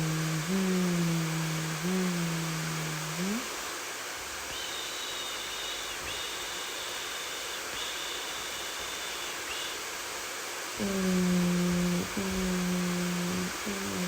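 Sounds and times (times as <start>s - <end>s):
hair dryer blowing: 0.0s - 3.7s
faint high whine: 0.0s - 14.0s.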